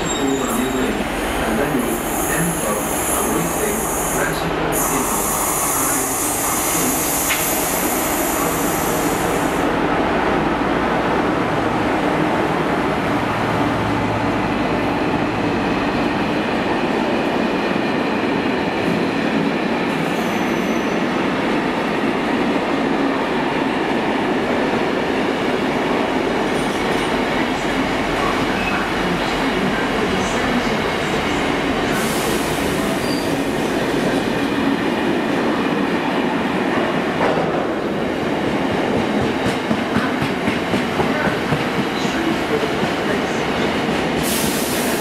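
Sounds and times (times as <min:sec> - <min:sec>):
diesel locomotive passing: 0:00.0 - 0:45.0.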